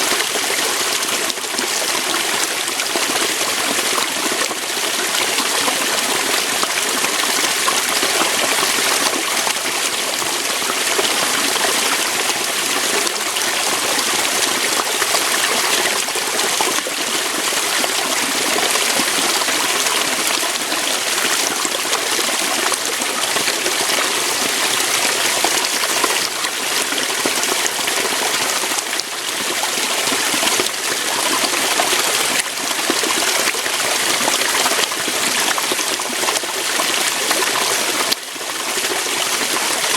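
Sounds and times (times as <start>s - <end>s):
water pouring over rocks: 0.0s - 39.9s.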